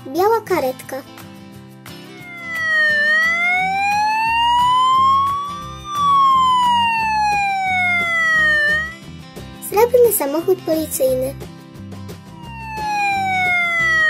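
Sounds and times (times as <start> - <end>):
background music: 0.0 - 14.0
emergency siren wailing: 2.1 - 9.0, 12.3 - 14.0.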